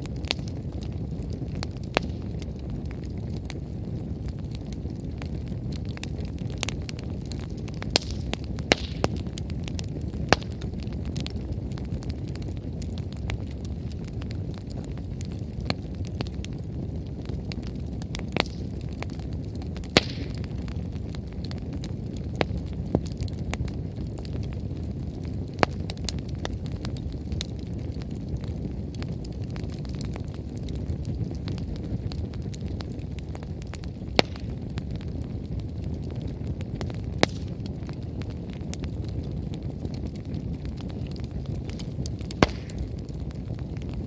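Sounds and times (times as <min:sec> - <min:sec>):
wood fire crackling: 0:00.0 - 0:44.0
sharp firewood pops: 0:08.0 - 0:09.2, 0:18.4 - 0:18.7, 0:19.9 - 0:20.5, 0:34.2 - 0:34.5, 0:37.2 - 0:37.6, 0:42.3 - 0:42.9.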